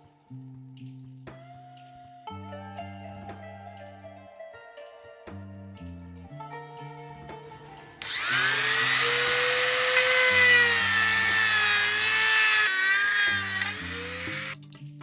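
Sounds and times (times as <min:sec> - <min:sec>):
background music: 0:00.0 - 0:15.0
power tool whine: 0:08.0 - 0:14.6.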